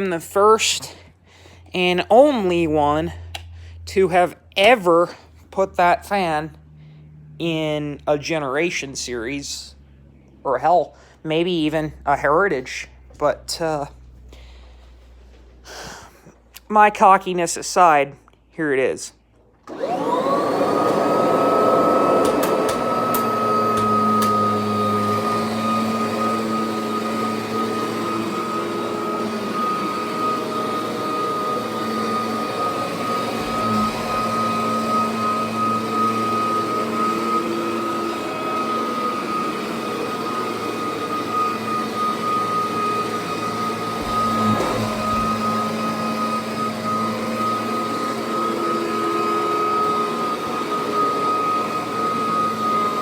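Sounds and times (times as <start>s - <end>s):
vacuum cleaner whining: 19.6s - 53.0s.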